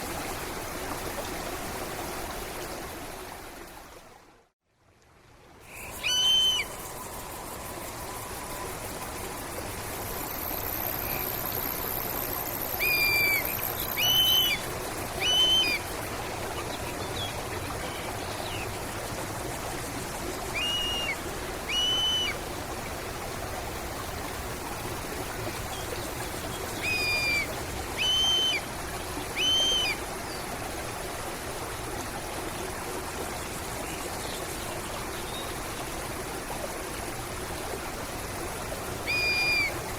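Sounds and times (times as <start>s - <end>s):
stream running: 0.0s - 39.9s
bird calling: 5.7s - 6.9s, 12.8s - 14.6s, 15.2s - 15.8s, 20.6s - 22.4s, 26.7s - 28.6s, 29.3s - 30.0s, 39.0s - 39.8s.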